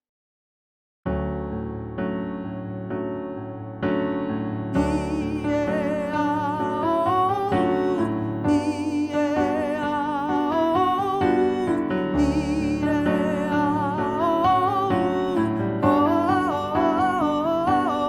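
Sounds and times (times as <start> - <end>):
piano chords: 1.1 - 18.0
person singing vocal scales: 4.8 - 18.0.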